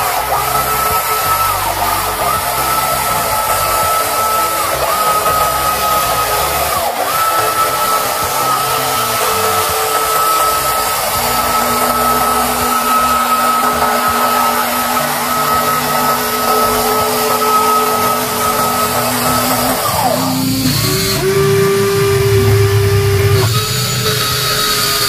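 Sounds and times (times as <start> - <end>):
toy electric motors whirring: 0.0 - 25.0.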